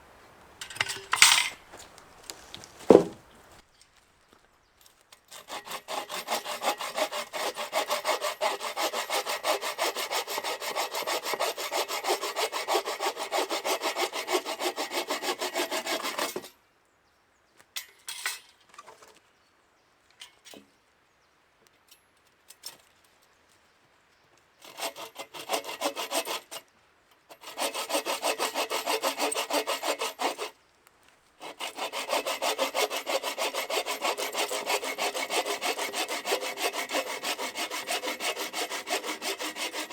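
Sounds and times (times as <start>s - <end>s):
small knocks: 0.6s - 3.6s
hand saw cutting wood: 1.0s - 3.3s, 5.3s - 16.5s, 24.6s - 26.6s, 27.3s - 30.6s, 31.4s - 39.9s.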